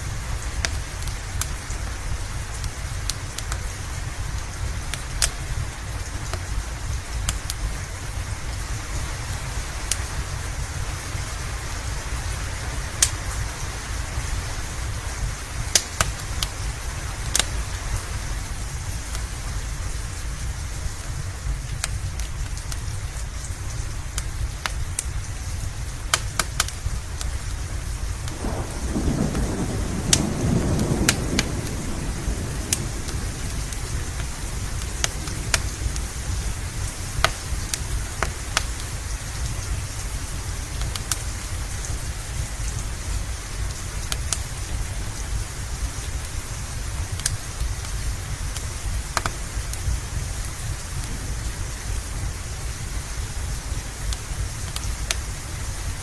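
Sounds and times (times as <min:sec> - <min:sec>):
steady rain: 0:00.0 - 0:56.0
thunder rumbling: 0:27.6 - 0:54.6.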